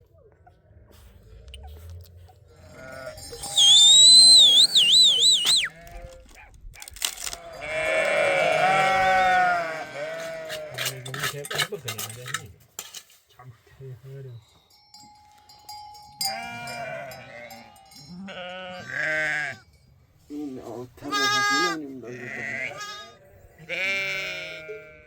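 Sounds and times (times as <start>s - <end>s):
sheep bleating: 2.6s - 3.5s, 7.3s - 11.0s, 16.2s - 19.6s, 21.0s - 25.0s
shrill wavering whistle: 3.4s - 5.7s
clinks: 10.6s - 13.2s, 14.4s - 18.6s.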